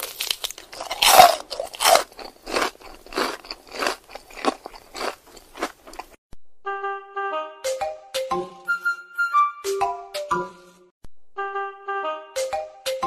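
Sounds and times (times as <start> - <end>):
crunchy chewing: 0.0 - 6.2.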